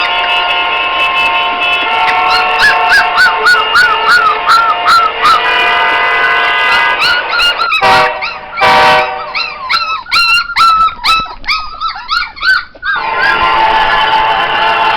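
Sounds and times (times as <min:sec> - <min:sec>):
dog barking: 0:02.0 - 0:11.3, 0:12.9 - 0:13.8
dog yelping and whining: 0:02.1 - 0:05.5, 0:06.7 - 0:13.6.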